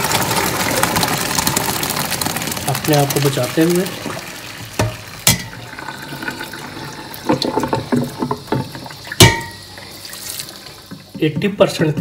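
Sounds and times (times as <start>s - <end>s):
tap water splashing: 0.0s - 12.0s
steel pot clanking: 4.7s - 10.0s.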